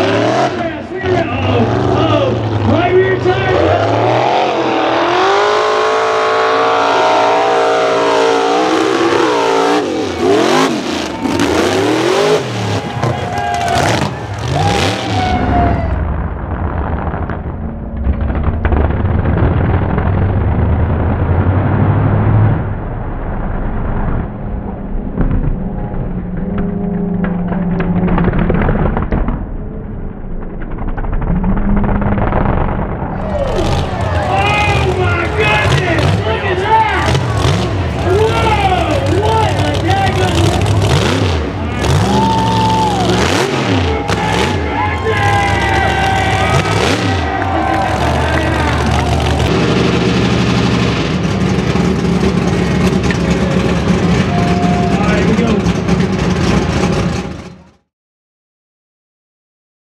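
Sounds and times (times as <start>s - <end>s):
truck engine revving: 0.0s - 57.9s.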